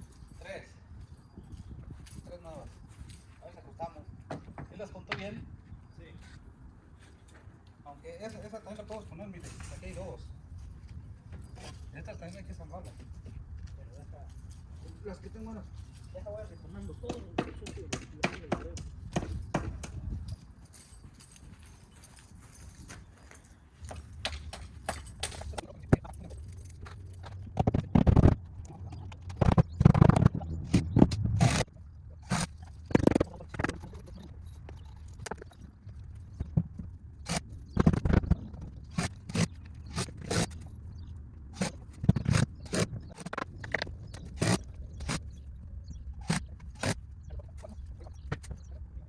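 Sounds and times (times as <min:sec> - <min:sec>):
wood scraping: 0:41.5 - 0:48.7.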